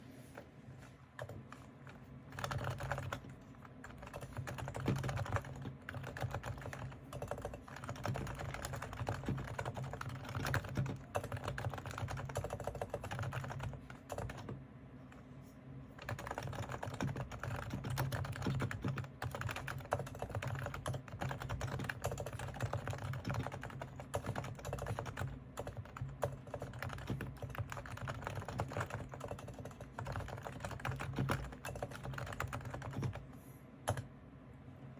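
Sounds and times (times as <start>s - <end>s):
keyboard typing: 1.2s - 14.6s, 16.0s - 33.3s, 33.9s - 34.1s.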